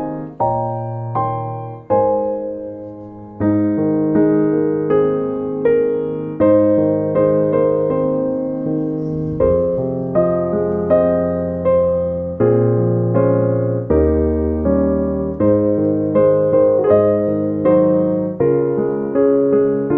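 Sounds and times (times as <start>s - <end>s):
slow piano piece: 0.0s - 19.9s.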